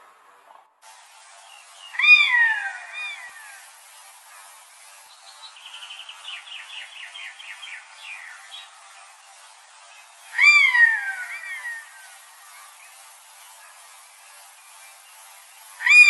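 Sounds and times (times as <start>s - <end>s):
bird trilling: 1.8s - 3.5s, 10.3s - 12.0s, 15.8s - 16.0s
bird mewing call: 1.9s - 3.6s, 10.3s - 12.0s, 15.8s - 16.0s.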